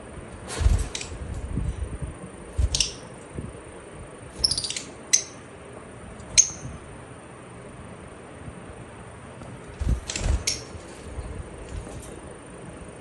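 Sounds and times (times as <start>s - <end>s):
lovebird shrill chirps: 4.4s - 5.4s, 6.4s - 6.8s.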